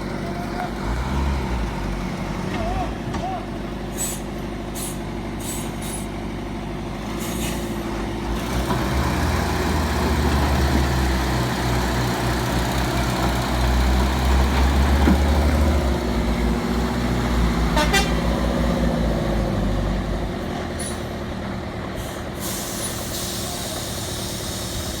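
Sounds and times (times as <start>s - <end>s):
heavy truck engine under load: 0.0s - 25.0s
short air hisses: 4.0s - 6.1s, 22.0s - 25.0s.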